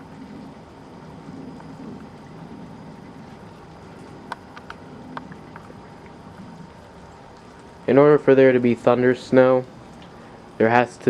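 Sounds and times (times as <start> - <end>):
faint clicks: 4.0 - 6.7, 9.9 - 10.2.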